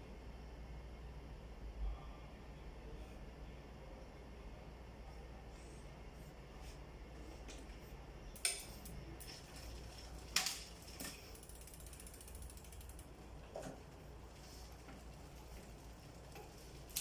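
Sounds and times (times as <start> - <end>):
sharp mechanical clicks: 11.3 - 13.1
ratchet-like ticking: 11.3 - 13.2.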